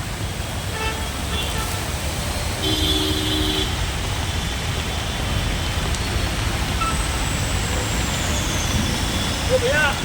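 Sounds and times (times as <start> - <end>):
road traffic rumble: 0.0 - 10.0
vehicle horn: 0.7 - 1.8, 2.6 - 3.8.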